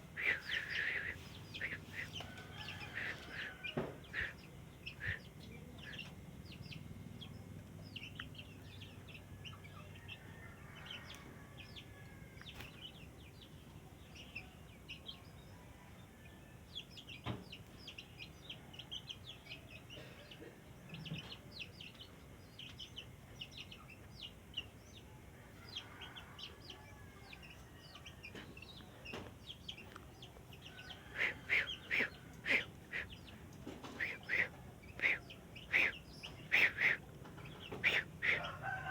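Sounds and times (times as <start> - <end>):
bird chirping calls: 0.1 - 9.9, 27.4 - 38.7.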